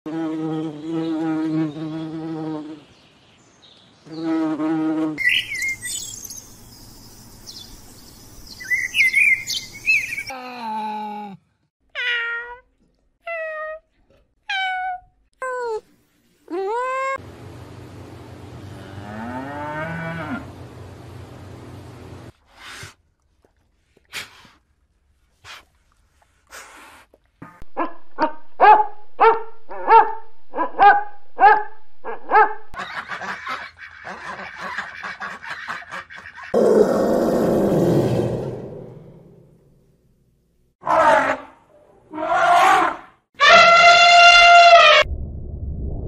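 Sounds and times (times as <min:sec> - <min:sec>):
cow mooing: 0:18.7 - 0:20.6
dog barking: 0:27.8 - 0:32.6.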